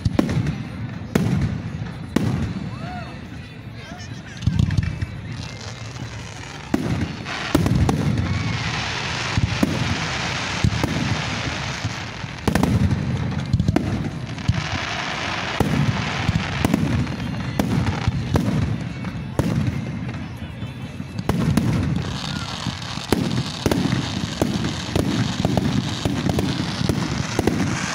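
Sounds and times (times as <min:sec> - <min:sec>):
firework crackling hiss: 0:04.6 - 0:18.8, 0:21.2 - 0:27.9
firework shells booming: 0:06.4 - 0:14.8, 0:21.2 - 0:27.9.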